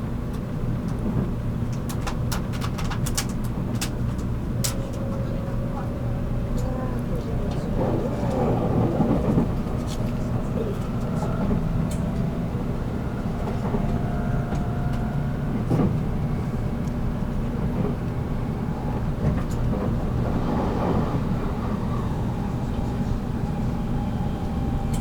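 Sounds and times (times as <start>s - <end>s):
train wheels rumbling: 0.3s - 25.0s.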